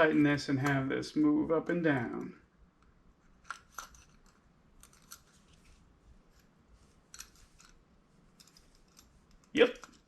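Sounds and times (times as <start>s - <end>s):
light clicks of small parts: 2.1s - 10.0s.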